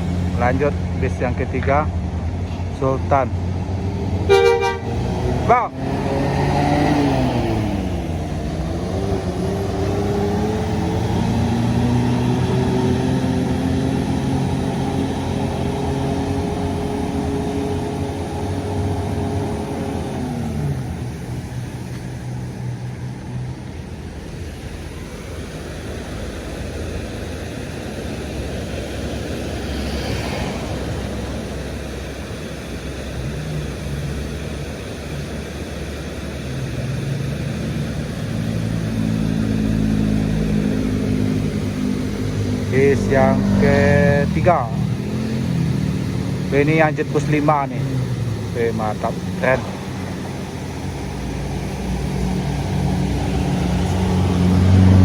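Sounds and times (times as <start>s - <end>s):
bus engine passing: 0.0s - 55.0s
traffic rumble: 0.0s - 55.0s.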